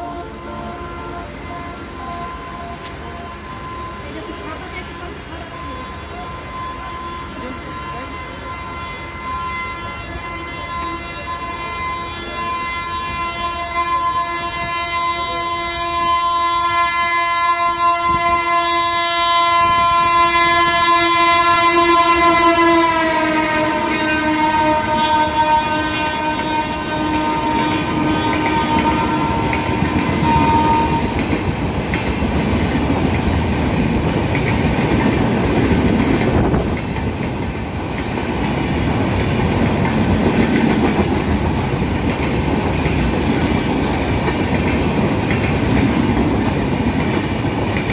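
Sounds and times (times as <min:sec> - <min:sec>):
train horn long blast: 0:00.0 - 0:31.6
train coaches rumbling past: 0:00.0 - 0:47.9.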